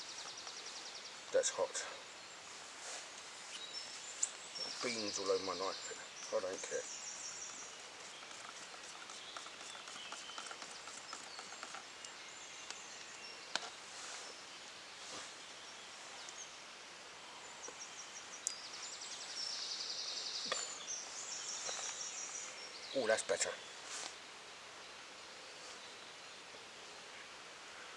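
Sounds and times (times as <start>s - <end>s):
insects chirping: 3.4s - 16.7s
sharp clicks: 8.2s - 13.7s.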